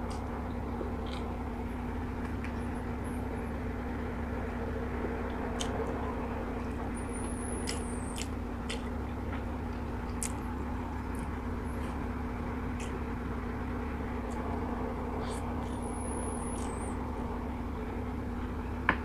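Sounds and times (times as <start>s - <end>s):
steady low hum: 0.0s - 19.0s
person chewing food: 1.0s - 1.3s, 7.2s - 12.0s.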